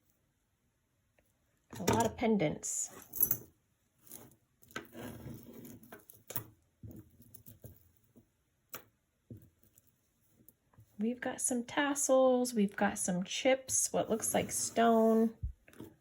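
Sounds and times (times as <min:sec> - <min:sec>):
jewelry chains and beads rustling: 0:02.8 - 0:08.0.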